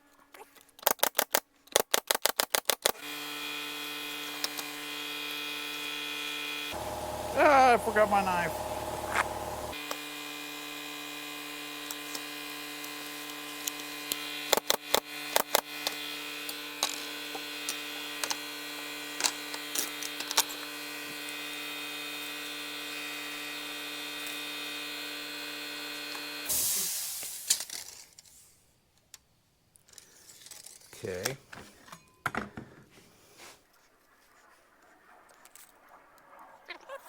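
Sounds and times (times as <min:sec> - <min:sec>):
air hissing: 0:06.7 - 0:09.8, 0:26.5 - 0:27.5
air compressor humming: 0:06.7 - 0:09.9.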